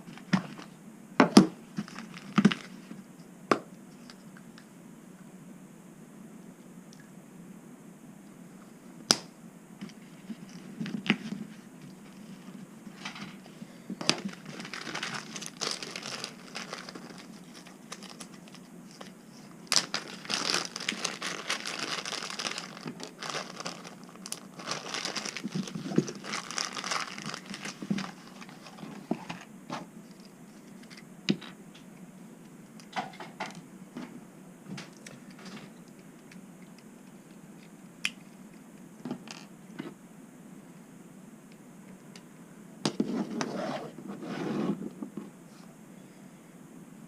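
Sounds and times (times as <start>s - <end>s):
crinkling and rustling: 1.7s - 3.0s, 9.8s - 31.8s.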